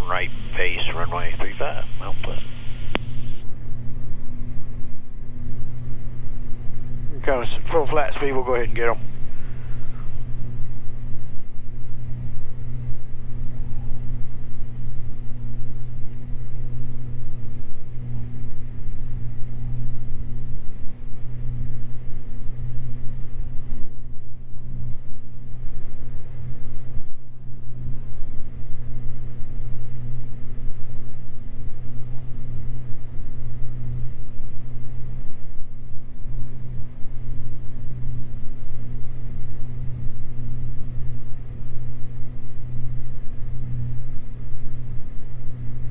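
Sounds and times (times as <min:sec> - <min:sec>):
propeller engines droning: 0:00.0 - 0:16.6.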